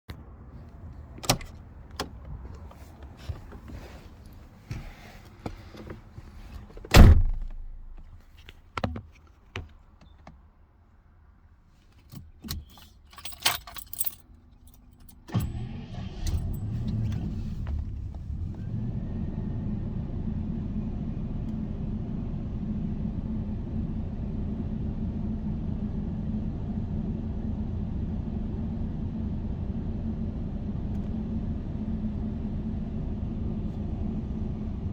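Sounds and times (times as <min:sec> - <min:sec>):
car engine starting and idling: 0:00.1 - 0:08.5, 0:12.0 - 0:34.9
loud thump: 0:06.9 - 0:08.1
keys jangling: 0:12.0 - 0:15.5.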